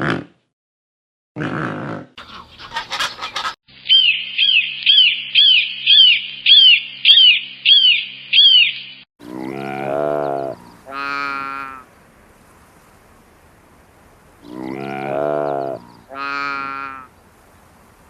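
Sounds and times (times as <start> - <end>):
bird chirping: 2.2 - 9.0
low drawn-out animal call: 9.2 - 11.9, 14.4 - 17.1.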